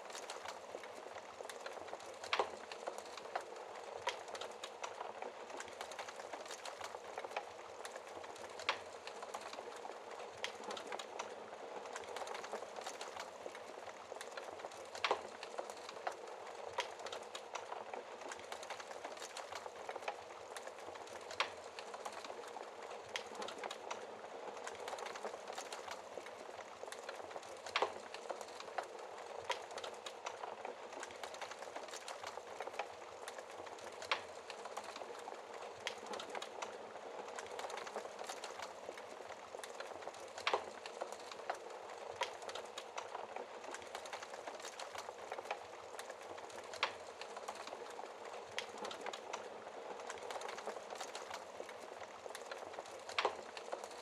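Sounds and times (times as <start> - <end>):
wood fire crackling and popping: 0.0 - 54.0.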